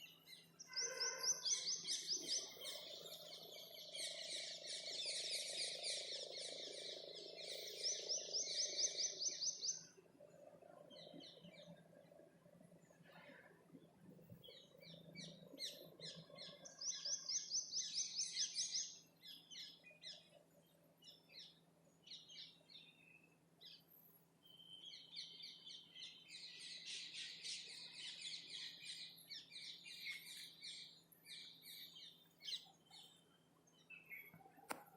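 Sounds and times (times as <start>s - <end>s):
songbirds singing and chirping: 0.0s - 34.9s.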